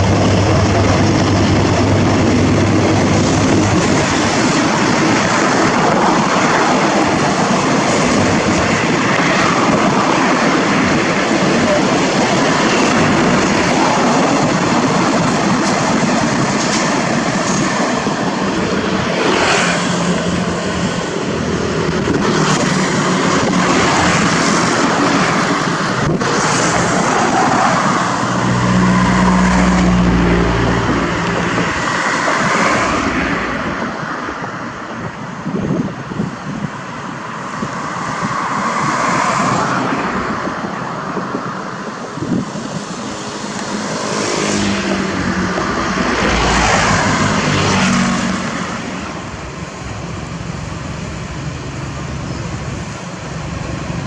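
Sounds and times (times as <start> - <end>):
deep engine drone: 0.0 - 5.9, 20.0 - 34.1, 43.2 - 50.8
train wheel and rail noise: 0.0 - 54.0.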